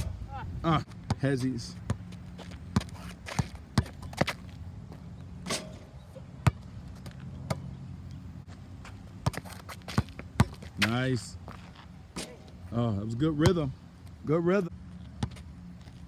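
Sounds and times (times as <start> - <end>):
basketball bouncing on a court: 0.9 - 5.6, 6.4 - 7.7, 9.2 - 11.0, 13.4 - 13.7, 15.1 - 15.5.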